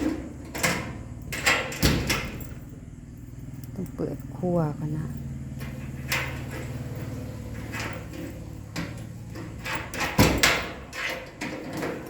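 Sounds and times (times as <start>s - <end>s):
rattles and clicks: 0.0s - 12.0s
door being unlocked and opened: 0.4s - 2.8s, 7.6s - 12.0s.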